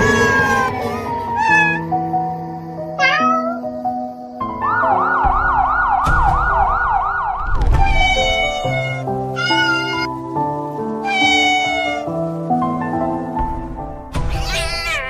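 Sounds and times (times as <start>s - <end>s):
cat meowing: 0.0s - 1.9s, 2.9s - 3.7s, 7.8s - 10.1s, 11.0s - 12.2s, 14.3s - 15.0s
siren wailing: 0.0s - 1.9s, 4.5s - 8.7s
background music: 0.0s - 15.0s.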